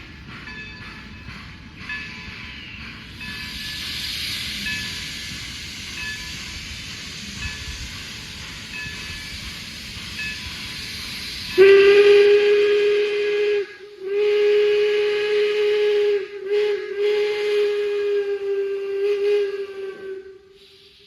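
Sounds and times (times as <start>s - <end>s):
low rumble of train: 0.0s - 21.0s
steam locomotive whistle blasts: 11.4s - 21.0s.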